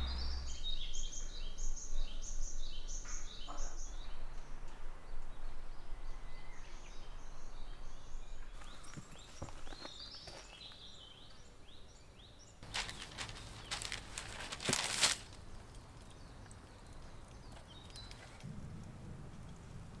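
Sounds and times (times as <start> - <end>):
small birds chirping: 6.5 - 18.4
rustling crackling noise: 12.6 - 18.5.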